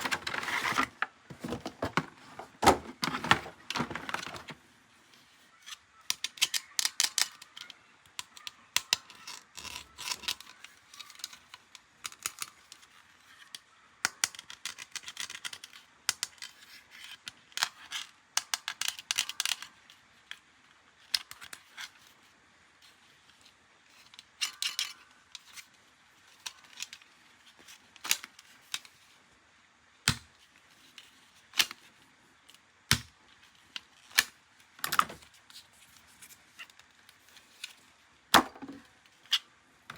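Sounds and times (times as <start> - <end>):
plastic toy parts rattling: 0.0 - 4.6, 5.7 - 13.4, 14.2 - 19.8, 23.9 - 27.2.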